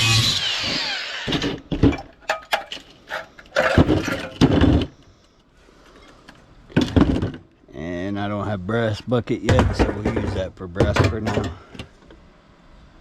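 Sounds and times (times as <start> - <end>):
power tool winding down: 0.0 - 1.6
scrap metal knocking and clanking: 1.7 - 5.0, 9.4 - 11.9.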